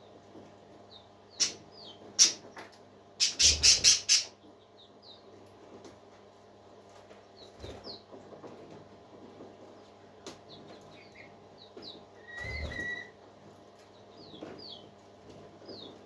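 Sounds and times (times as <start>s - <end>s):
parakeets chirping: 1.3s - 2.5s, 3.2s - 4.4s
whistled bird call: 12.2s - 13.2s.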